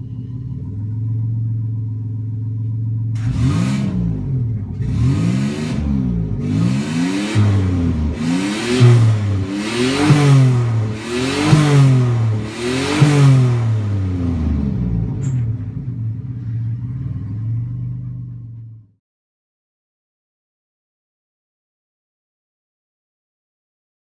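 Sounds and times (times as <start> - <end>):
car engine idling and revving: 0.0 - 19.0.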